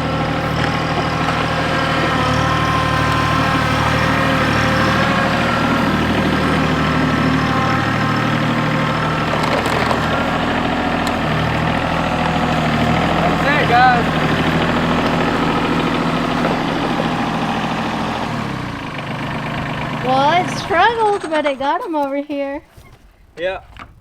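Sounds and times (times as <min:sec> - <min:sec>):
tractor diesel engine running: 0:00.0 - 0:22.6.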